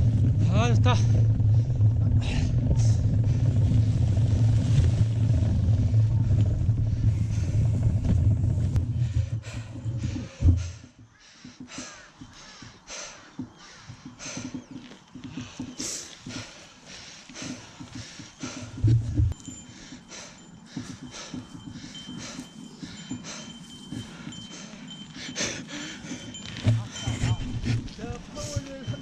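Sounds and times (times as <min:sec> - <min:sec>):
low rumble with deep hum: 0:00.0 - 0:10.9, 0:17.9 - 0:19.6.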